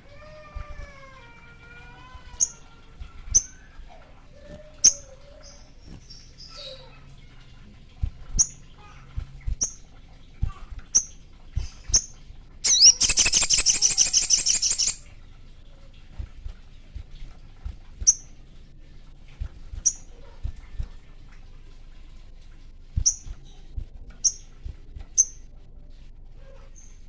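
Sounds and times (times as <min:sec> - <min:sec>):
bird chirping: 0:11.9 - 0:15.0
bird buzzy trill: 0:12.6 - 0:15.0.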